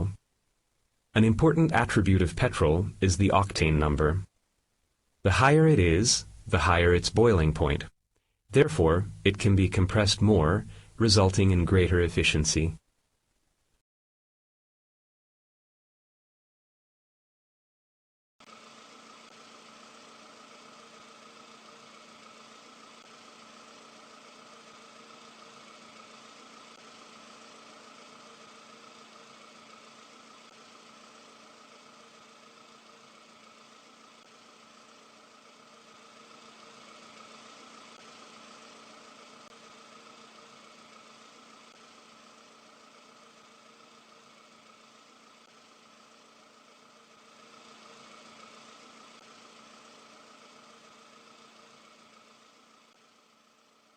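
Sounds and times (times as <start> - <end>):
engine idling: 18.4 - 53.9.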